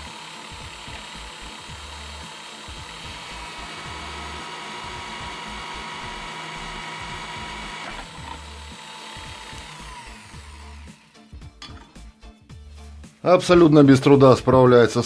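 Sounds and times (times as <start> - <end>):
electric drill whining: 0.0 - 11.3.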